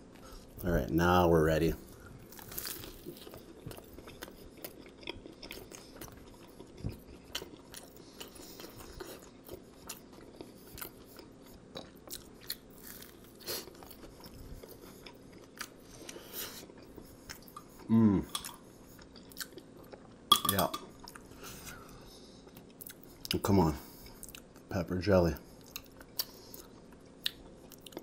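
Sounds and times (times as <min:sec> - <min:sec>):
crunchy chewing: 0:01.8 - 0:20.2.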